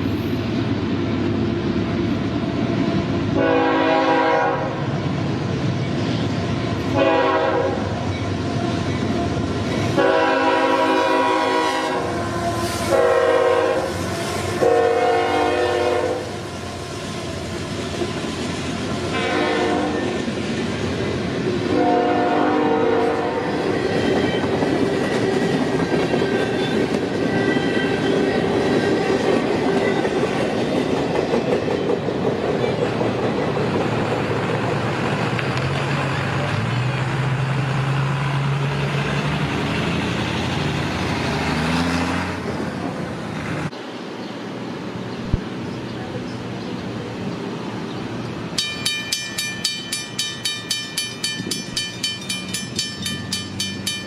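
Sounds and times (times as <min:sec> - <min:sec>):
train horn blowing: 0:03.4 - 0:04.9, 0:06.9 - 0:16.4, 0:19.1 - 0:20.2, 0:21.6 - 0:24.4, 0:26.4 - 0:28.5
train wheels clattering on rails: 0:23.6 - 0:37.2, 0:48.5 - 0:54.0
locomotive engine drone: 0:32.6 - 0:54.0
grade crossing bell ringing: 0:48.6 - 0:54.0.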